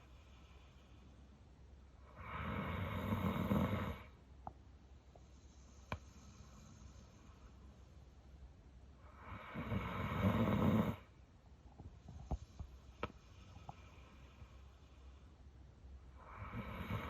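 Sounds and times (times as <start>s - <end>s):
dog snoring: 2.1s - 4.2s, 9.1s - 11.1s, 16.2s - 17.0s.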